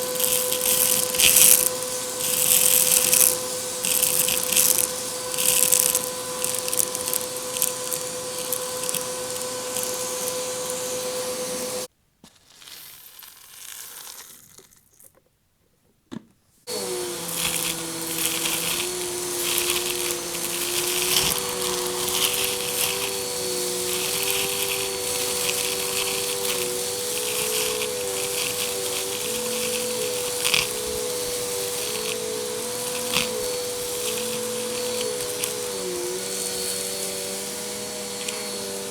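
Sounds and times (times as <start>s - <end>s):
vacuum cleaner running: 0.0s - 11.9s, 16.7s - 38.9s
debris rattling through vacuum: 16.7s - 38.9s.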